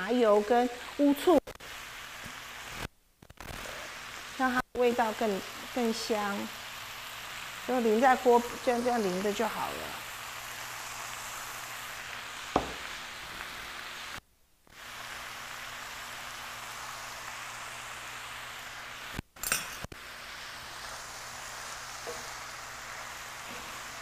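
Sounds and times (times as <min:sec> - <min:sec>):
food sizzling in a frying pan: 0:00.0 - 0:24.0
sharp clink: 0:19.4 - 0:19.8.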